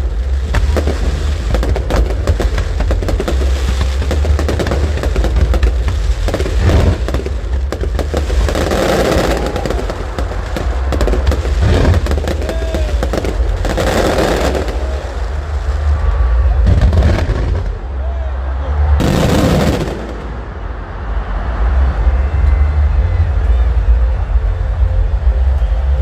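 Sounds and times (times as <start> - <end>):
fireworks bangs and crackles: 0.0 - 17.9, 18.8 - 21.6
low rumble: 0.0 - 26.0.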